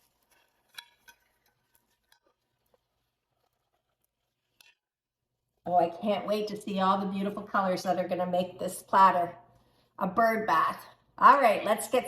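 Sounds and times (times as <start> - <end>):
faint clicks and taps of objects: 0.0 - 5.0.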